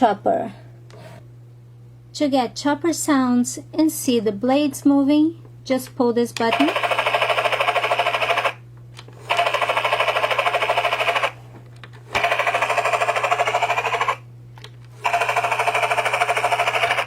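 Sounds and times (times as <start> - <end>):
toy helicopter rotor clatter: 6.5 - 8.6, 9.3 - 11.4, 12.1 - 14.2, 15.0 - 17.0.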